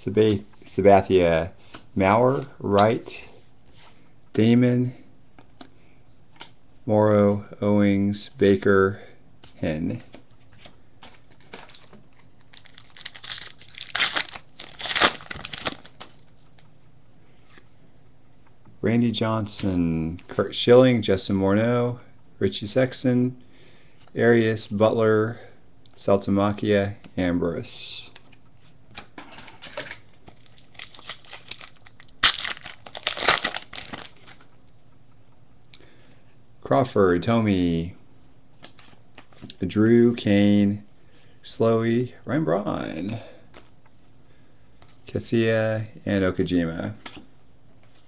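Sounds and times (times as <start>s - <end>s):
wrapper tearing and crinkling: 11.6s - 16.2s, 30.4s - 34.4s.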